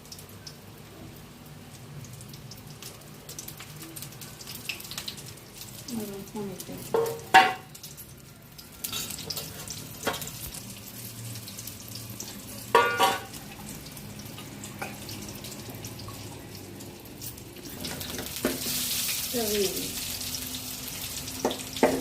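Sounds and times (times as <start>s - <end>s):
cooking hiss: 0.0s - 22.0s
metal utensils clinking: 8.8s - 10.4s, 12.7s - 13.4s.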